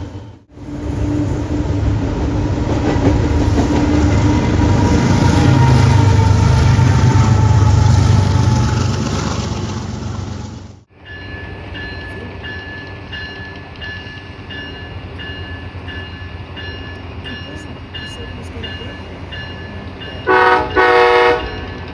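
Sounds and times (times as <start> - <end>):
train rumbling past: 0.0 - 21.9
grade crossing bell ringing: 11.0 - 21.9.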